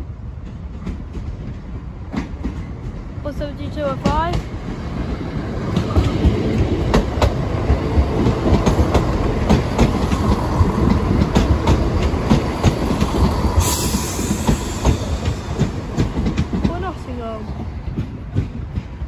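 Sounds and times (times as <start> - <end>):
diesel train engine rumble: 0.0 - 19.0
wheels clacking over rail joints: 0.4 - 19.0
hiss: 13.6 - 15.4.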